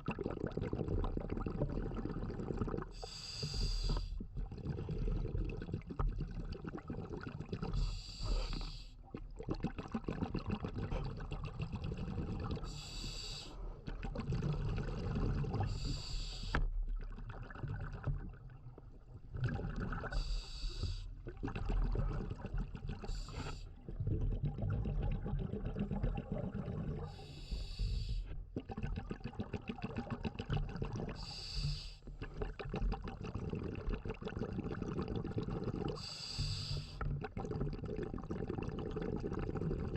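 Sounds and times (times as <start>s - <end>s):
low rumble of water: 0.0s - 39.9s
underwater bubbling: 0.0s - 39.9s
regulator breathing hiss: 3.0s - 4.1s, 7.8s - 9.0s, 12.7s - 13.6s, 15.7s - 16.6s, 20.2s - 21.0s, 23.1s - 23.7s, 27.1s - 28.3s, 31.2s - 32.0s, 36.0s - 37.0s.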